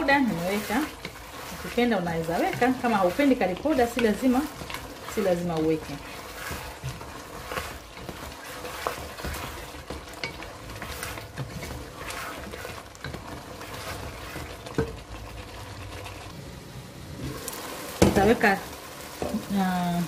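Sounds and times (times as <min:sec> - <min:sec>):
spatula knocking and scraping pot: 0:00.0 - 0:16.3
potatoes sizzling in oil: 0:00.0 - 0:20.0.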